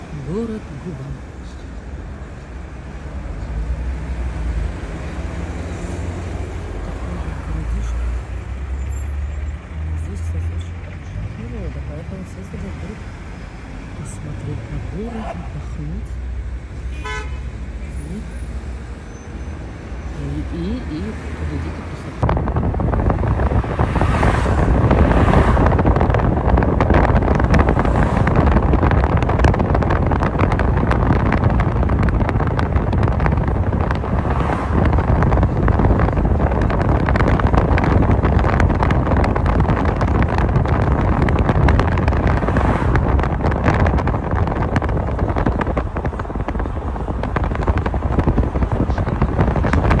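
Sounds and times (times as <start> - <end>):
wind buffeting microphone: 21.6 - 50.0.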